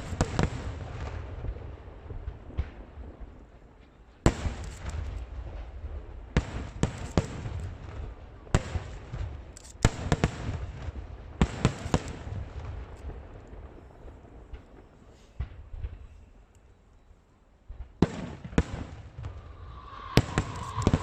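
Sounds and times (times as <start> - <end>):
fireworks bangs: 0.0 - 16.4, 17.8 - 21.0
low rumble: 19.2 - 21.0.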